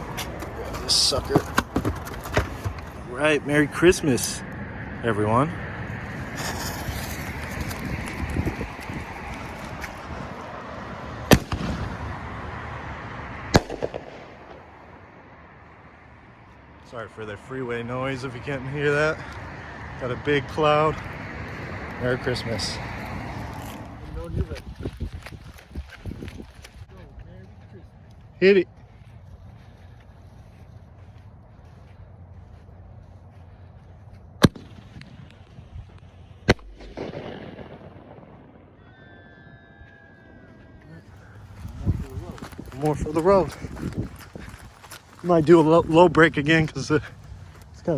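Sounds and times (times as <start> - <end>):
freeway traffic hum: 0.0 - 47.9
firework bangs: 11.3 - 12.2, 13.5 - 14.8, 34.4 - 35.2, 36.4 - 38.9.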